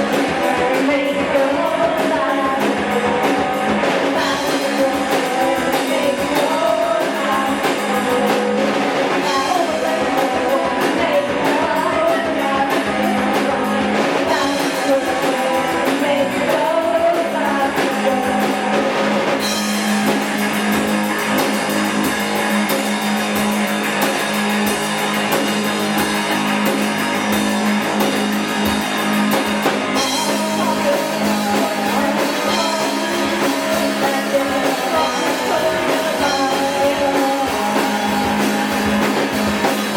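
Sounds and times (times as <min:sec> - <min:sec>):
person singing: 0:00.0 - 0:19.7, 0:30.0 - 0:39.9
drum kit: 0:00.0 - 0:39.9
electric guitar: 0:00.0 - 0:39.9.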